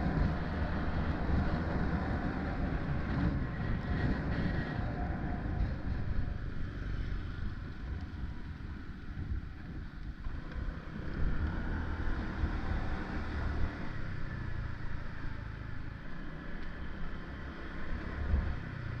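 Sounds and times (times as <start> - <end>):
wind rumbling on microphone: 0.0 - 16.1, 17.8 - 19.0
vehicle road noise: 0.0 - 19.0.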